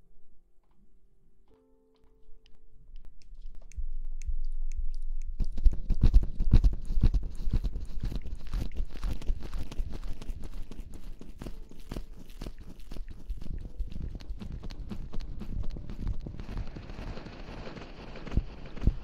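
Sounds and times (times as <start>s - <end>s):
rustling and rubbing on microphone: 5.3s - 19.0s.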